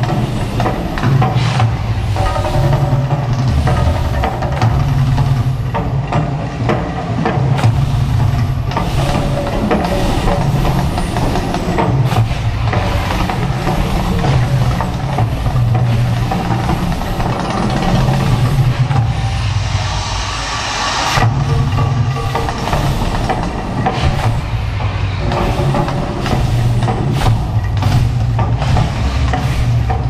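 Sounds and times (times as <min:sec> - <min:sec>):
low rumble with bursts: 0:00.0 - 0:30.0.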